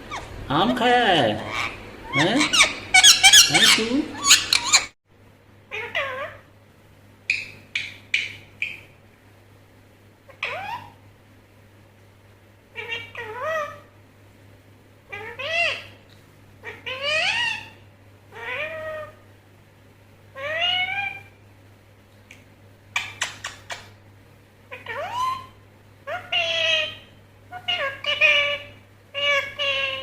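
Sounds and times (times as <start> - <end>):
parrot meow-like calls: 1.4 - 4.9, 5.7 - 6.5, 10.3 - 11.0, 12.7 - 13.9, 15.1 - 16.0, 16.6 - 19.2, 20.4 - 21.4, 24.7 - 30.0.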